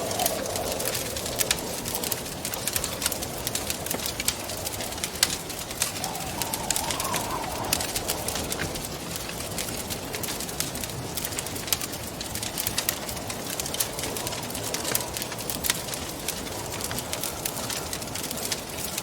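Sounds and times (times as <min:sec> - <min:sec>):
wind rushing: 0:00.0 - 0:10.5
wood fire crackling and popping: 0:00.0 - 0:19.0.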